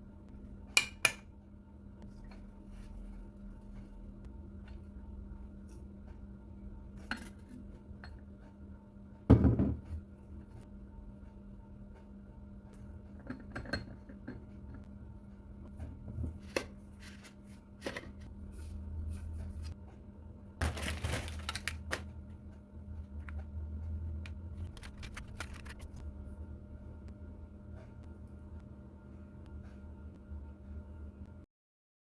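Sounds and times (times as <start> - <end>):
steady low hum: 0.0 - 31.5
rustling and crinkling: 20.6 - 22.2.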